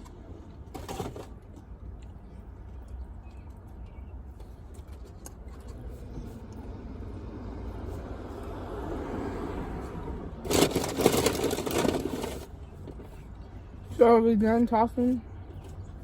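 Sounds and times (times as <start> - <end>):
car passing by: 5.8 - 10.8.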